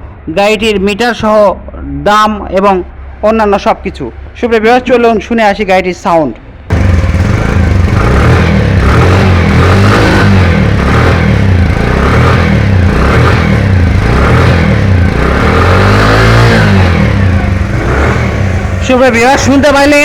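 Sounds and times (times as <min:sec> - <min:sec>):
motorcycle engine revving: 0:06.7 - 0:20.0.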